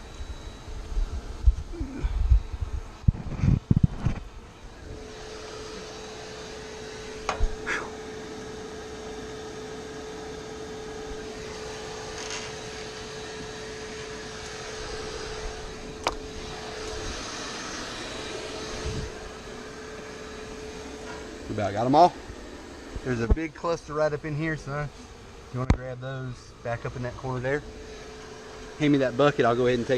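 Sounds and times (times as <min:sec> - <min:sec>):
bee vacuum humming: 0:00.0 - 0:29.9.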